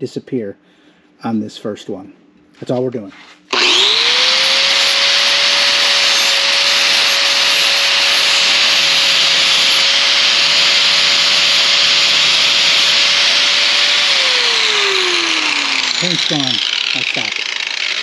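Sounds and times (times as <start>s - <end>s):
sanding pad hissing on metal: 3.2s - 17.4s
angle grinder whine: 3.5s - 18.0s.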